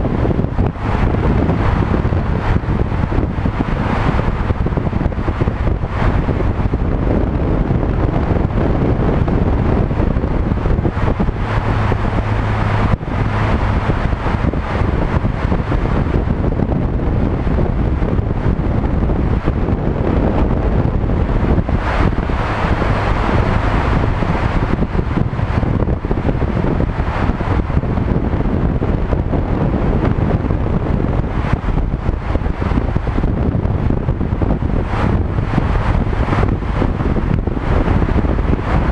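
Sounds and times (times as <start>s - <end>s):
low hum: 0.0s - 38.9s
low road and engine rumble: 0.0s - 38.9s
wind buffeting microphone: 0.0s - 38.9s.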